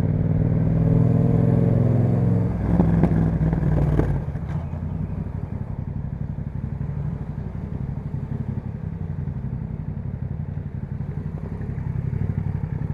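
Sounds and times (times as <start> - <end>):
motorcycle engine idling: 3.2 - 12.9.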